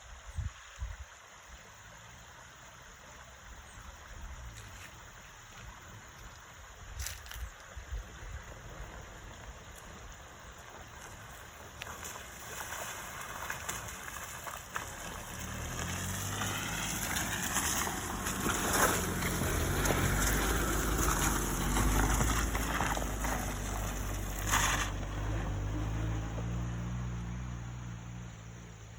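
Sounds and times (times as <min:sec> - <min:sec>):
water splashing against vehicle: 0:01.2 - 0:26.9
vehicle engine running: 0:08.2 - 0:28.9.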